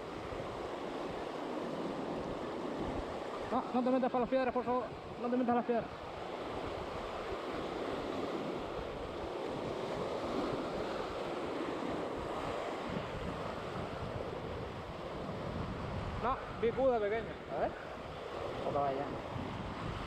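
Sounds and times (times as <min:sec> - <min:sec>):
sea surf on shore: 0:00.0 - 0:20.0
wind buffeting microphone: 0:05.8 - 0:20.0.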